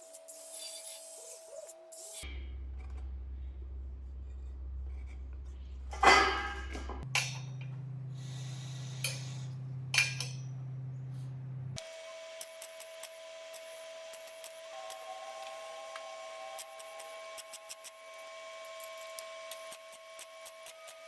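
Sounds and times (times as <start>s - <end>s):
low hum: 2.2s - 11.8s
steel parts clanging: 5.9s - 7.7s, 9.0s - 9.4s, 10.0s - 10.5s.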